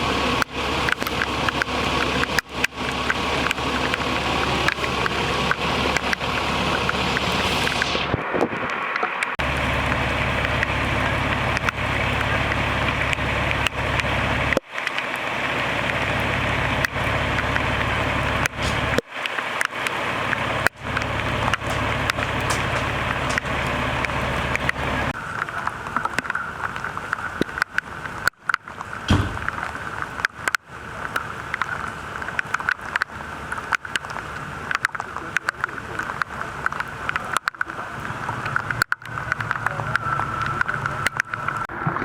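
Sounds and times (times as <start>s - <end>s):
fire engine idling: 0.0s - 8.1s, 9.4s - 26.0s, 34.4s - 41.7s
rain hissing: 0.0s - 41.8s.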